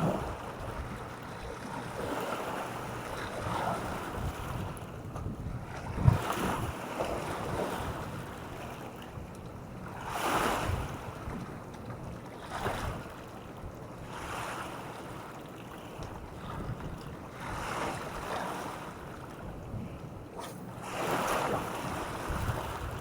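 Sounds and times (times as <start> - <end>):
wind rumbling on microphone: 0.0 - 2.2, 3.0 - 11.6, 12.5 - 14.4, 16.0 - 18.4, 19.4 - 23.0
small waves washing on shore: 0.0 - 5.0, 9.8 - 11.6, 12.2 - 23.0.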